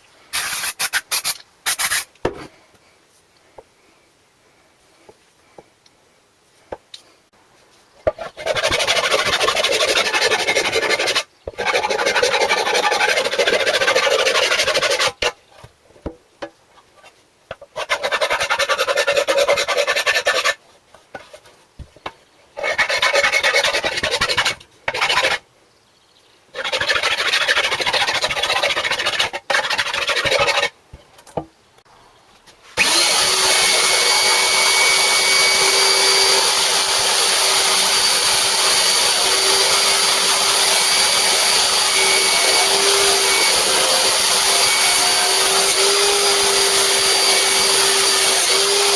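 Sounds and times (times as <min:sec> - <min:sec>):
sanding a part: 0:00.4 - 0:02.1, 0:08.2 - 0:15.3, 0:17.8 - 0:20.6, 0:22.6 - 0:25.4, 0:26.6 - 0:30.8
small power tool whining: 0:32.8 - 0:48.9.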